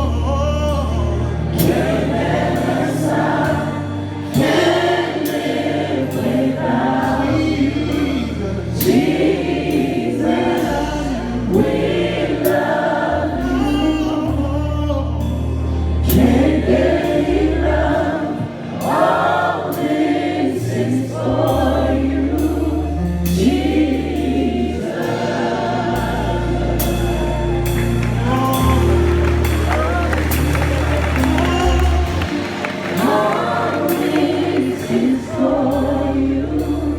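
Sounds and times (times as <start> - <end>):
gospel choir singing: 0.0 - 36.9
held bass notes: 0.0 - 36.9.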